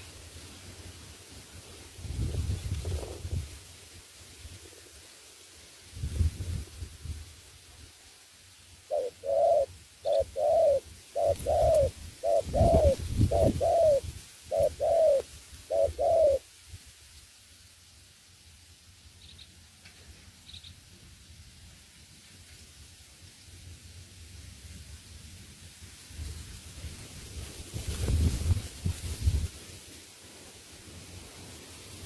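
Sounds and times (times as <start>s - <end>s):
dove cooing: 8.9s - 16.4s
small bird chirping: 8.9s - 16.4s, 19.2s - 19.6s, 20.3s - 20.8s.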